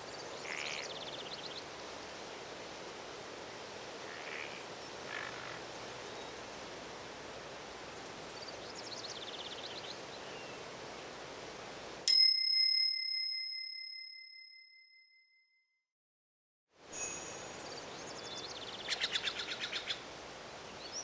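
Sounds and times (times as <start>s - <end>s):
forest ambience: 0.0s - 12.0s, 16.8s - 21.0s
timer bell ding: 12.1s - 15.3s, 17.0s - 17.7s
bird trill: 17.0s - 20.0s.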